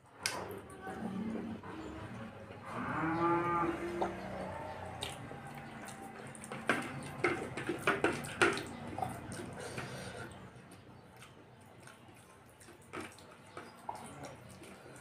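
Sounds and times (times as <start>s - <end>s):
open-mouthed chewing smacks: 4.9s - 7.2s, 8.2s - 15.0s.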